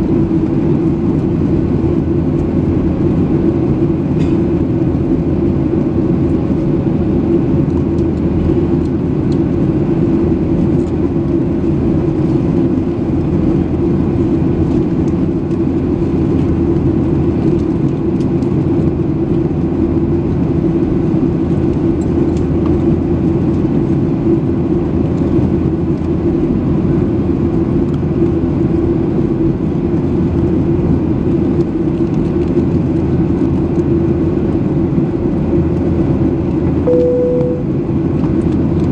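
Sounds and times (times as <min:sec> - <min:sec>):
jet engines roaring in cabin: 0:00.0 - 0:38.9
faint steady tone: 0:36.9 - 0:37.8
low hum: 0:36.9 - 0:38.3.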